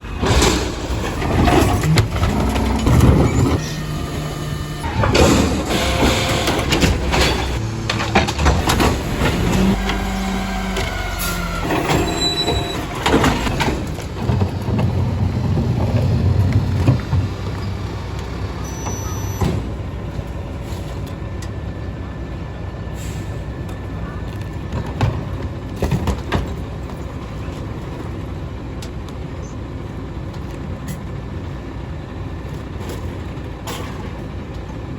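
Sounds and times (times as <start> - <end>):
garbage truck diesel engine: 0.0 - 34.9
hydraulics whine: 0.0 - 34.9
clanks and thumps of packer: 0.1 - 17.8, 24.6 - 28.2.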